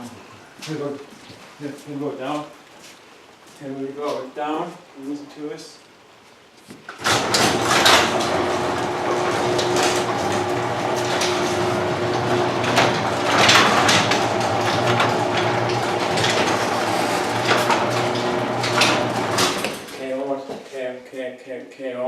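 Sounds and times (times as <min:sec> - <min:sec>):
garage door opener motor hum: 0:07.0 - 0:20.0
garage door rattling: 0:07.0 - 0:20.2.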